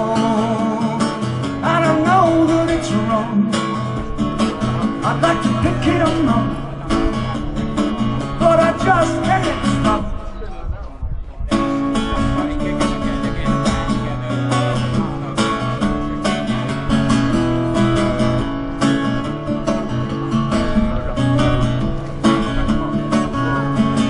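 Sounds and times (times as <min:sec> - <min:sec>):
acoustic guitar strumming: 0:00.0 - 0:10.4, 0:11.5 - 0:24.0.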